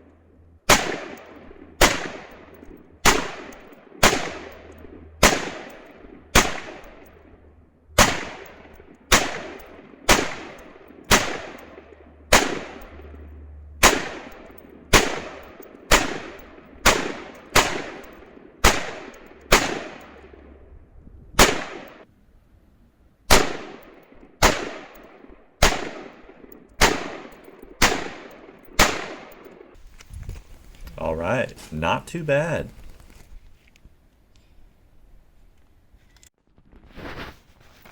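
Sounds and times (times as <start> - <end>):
rifle shots echoing: 0.7 - 20.5, 21.4 - 22.1, 23.3 - 29.8.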